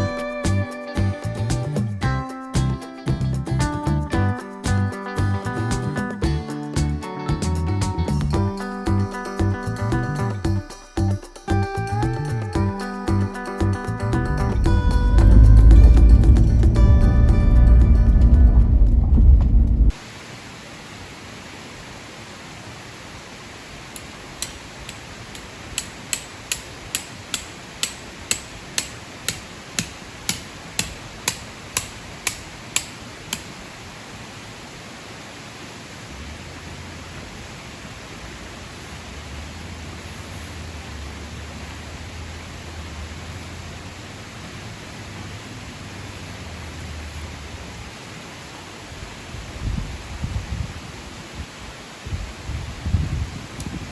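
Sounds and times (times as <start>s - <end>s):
sharp evenly spaced strikes: 4.4s - 18.7s, 24.0s - 33.5s
low hum: 13.6s - 20.0s
steady hiss: 19.8s - 53.9s.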